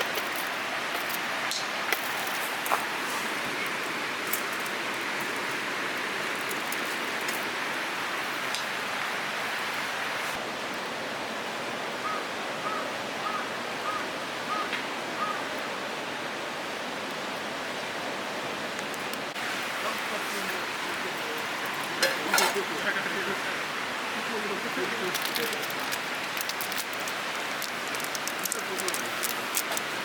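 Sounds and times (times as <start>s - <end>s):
running water: 0.0s - 10.4s, 18.5s - 30.0s.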